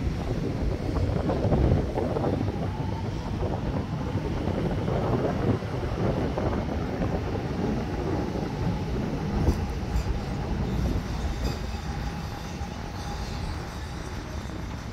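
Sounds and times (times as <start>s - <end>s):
steel wheels rumbling on rail: 0.0s - 14.9s.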